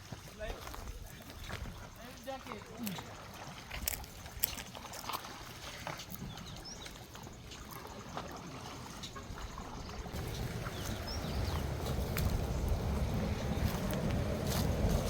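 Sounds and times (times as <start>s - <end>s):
small clicks and splashes: 0.0s - 12.8s
water trickling and lapping: 0.0s - 15.0s
wind rumble on microphone: 9.4s - 15.0s.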